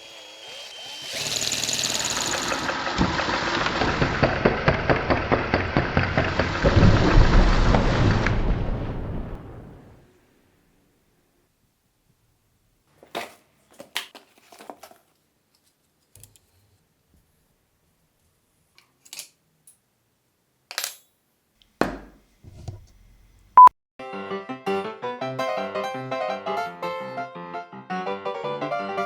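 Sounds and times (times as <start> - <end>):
music: 24.0 - 29.0.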